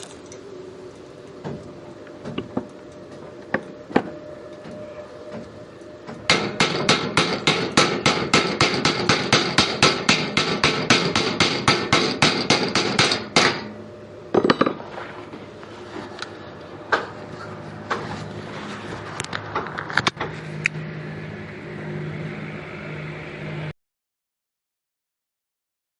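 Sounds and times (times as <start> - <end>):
hammer striking steel tubing: 6.1 - 14.8.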